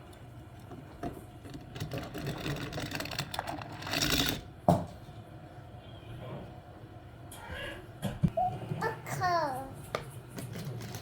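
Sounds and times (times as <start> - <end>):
plastic toys clicking and rattling: 1.4 - 4.5, 10.4 - 11.0.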